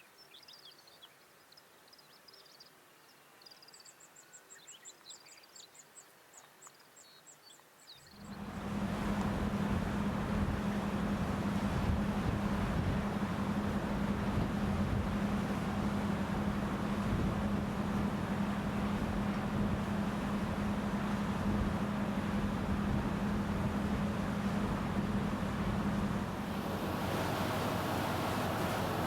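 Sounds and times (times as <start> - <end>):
boat engine humming: 8.1 - 29.0
wind and water rushing: 8.1 - 29.0.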